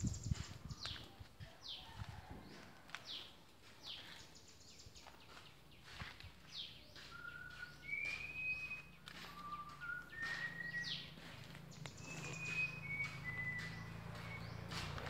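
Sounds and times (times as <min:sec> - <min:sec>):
birds whistling: 0:05.8 - 0:15.0.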